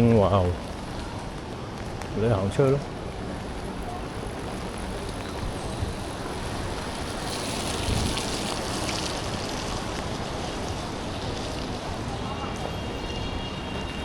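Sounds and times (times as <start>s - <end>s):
tyres hissing on wet road: 0.0s - 14.0s
vehicle passing close: 4.8s - 11.5s.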